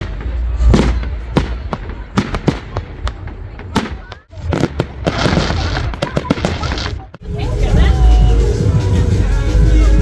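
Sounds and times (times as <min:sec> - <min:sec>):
fireworks banging: 0:00.0 - 0:08.0.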